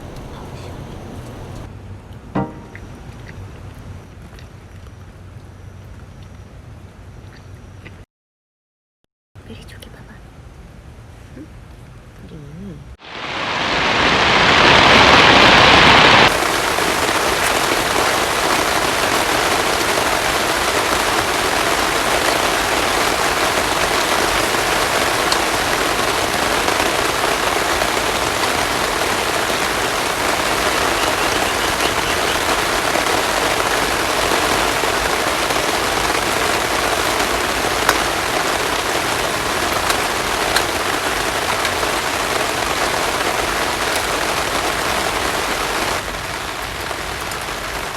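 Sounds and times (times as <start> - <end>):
heavy rain falling: 0.0 - 1.7, 13.0 - 47.9.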